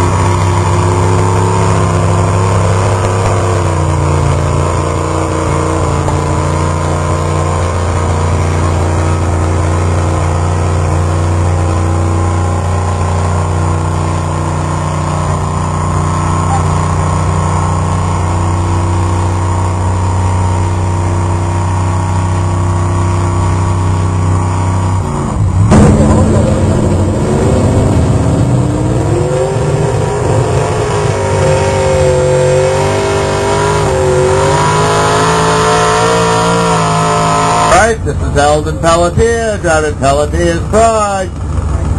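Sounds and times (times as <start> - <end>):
truck engine running loud: 0.0 - 41.9
sharp bang: 25.6 - 29.1.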